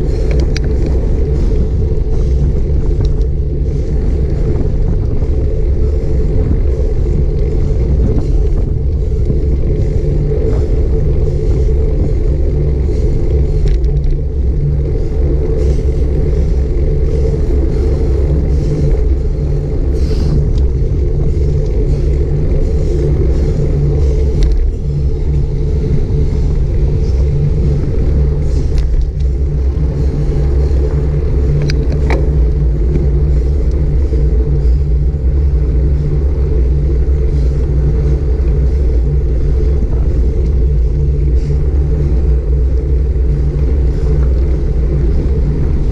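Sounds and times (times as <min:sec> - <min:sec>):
faint clicks and rattles: 0:00.0 - 0:11.4, 0:20.3 - 0:35.0
road noise: 0:00.0 - 0:45.9
wind buffeting microphone: 0:00.0 - 0:45.9.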